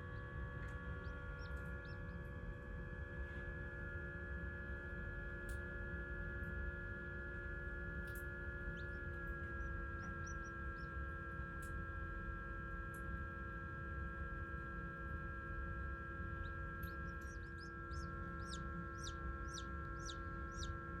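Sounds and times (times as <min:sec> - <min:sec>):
electrical hum: 0:00.0 - 0:21.0
chick peeping: 0:01.4 - 0:02.1, 0:09.6 - 0:10.9, 0:16.4 - 0:20.7.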